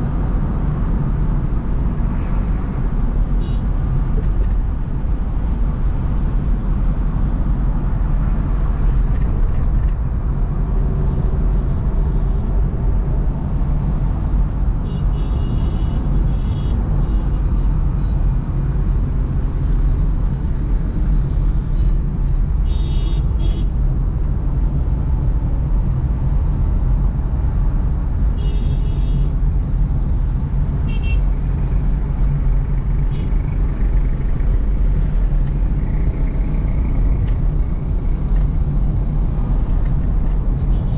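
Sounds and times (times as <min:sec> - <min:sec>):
car engine and tyre rumble: 0:00.0 - 0:40.9
vehicle horn toots: 0:22.6 - 0:23.7, 0:30.9 - 0:31.2.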